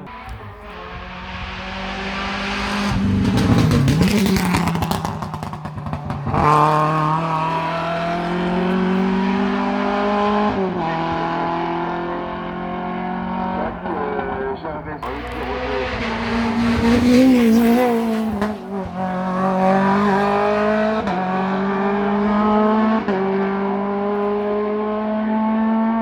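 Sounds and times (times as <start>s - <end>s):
race car engine accelerating: 0.0s - 26.0s.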